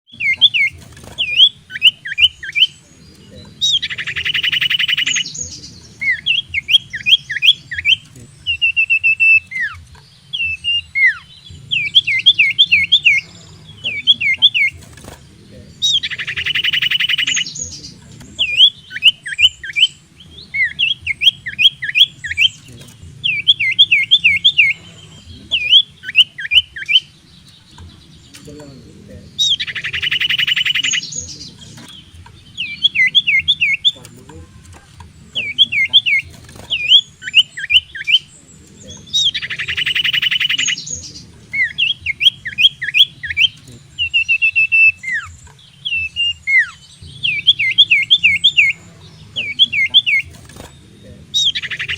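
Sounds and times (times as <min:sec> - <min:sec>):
bird whistling: 0:00.0 - 0:28.5, 0:29.2 - 0:51.9
buzzy rattling bird trill: 0:00.0 - 0:51.9
faint low hum: 0:00.1 - 0:51.9.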